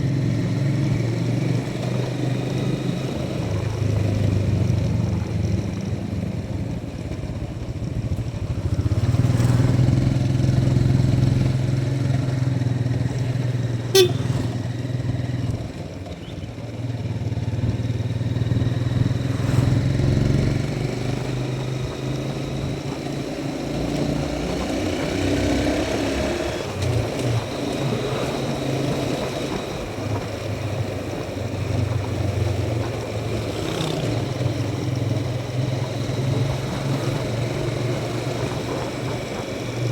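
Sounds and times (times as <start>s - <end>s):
motorcycle engine running: 0.0s - 39.9s
short sharp sound: 14.0s - 14.6s.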